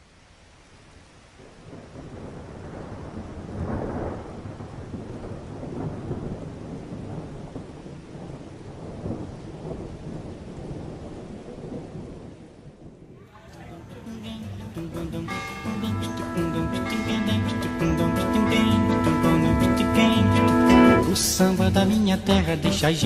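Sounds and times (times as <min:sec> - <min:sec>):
steady rain: 0:00.0 - 0:23.0
thunder rumbling: 0:01.3 - 0:23.0.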